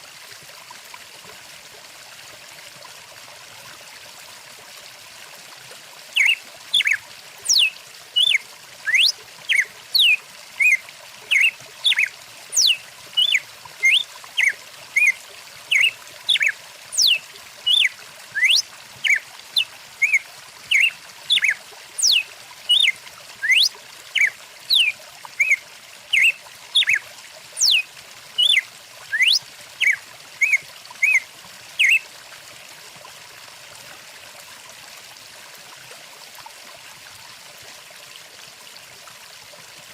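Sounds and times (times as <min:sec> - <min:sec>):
stream flowing: 0:00.0 - 0:39.9
songbird chirping and whistling: 0:06.2 - 0:27.0, 0:27.6 - 0:27.8, 0:28.4 - 0:31.2, 0:31.8 - 0:32.0.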